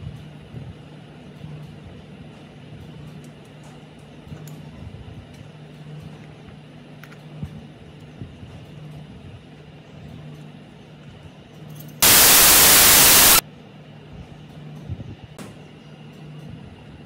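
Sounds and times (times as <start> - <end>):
loud even hiss: 12.0 - 13.4.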